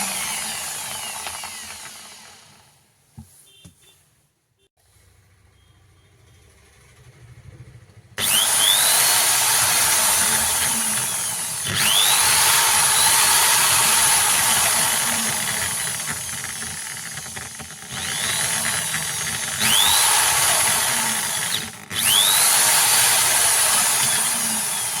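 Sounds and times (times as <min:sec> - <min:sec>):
electric drill whining: 0:00.0 - 0:02.6, 0:08.2 - 0:25.0.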